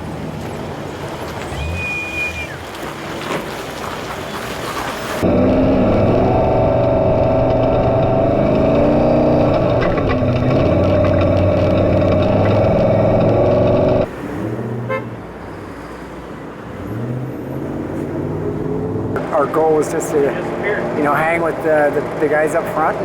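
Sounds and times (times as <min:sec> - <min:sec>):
race truck engine revving: 0:01.4 - 0:02.9, 0:05.0 - 0:15.3, 0:16.7 - 0:23.0.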